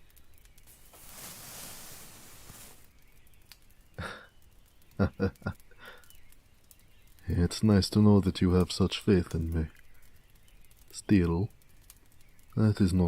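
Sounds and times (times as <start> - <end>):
man chuckling softly: 4.0 - 4.4, 5.0 - 6.1.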